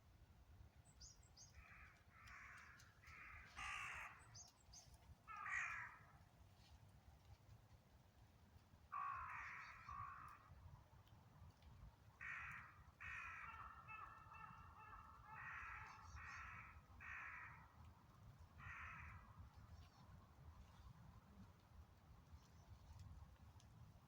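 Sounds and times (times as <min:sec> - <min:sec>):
crow cawing: 0:01.6 - 0:04.2, 0:05.3 - 0:06.1, 0:08.9 - 0:10.5, 0:12.2 - 0:17.7, 0:18.6 - 0:19.3.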